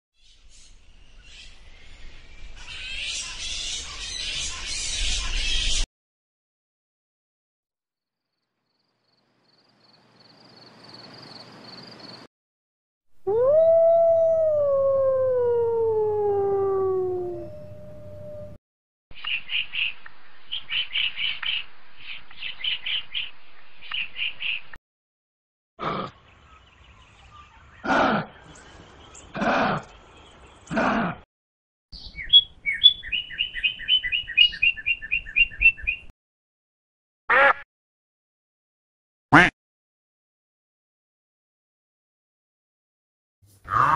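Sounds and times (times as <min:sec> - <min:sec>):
bird singing: 0:08.7 - 0:12.2, 0:19.2 - 0:24.8, 0:26.2 - 0:30.7, 0:32.0 - 0:36.1
wolf howling: 0:13.2 - 0:18.6
low animal call: 0:13.3 - 0:18.6, 0:43.7 - 0:43.9.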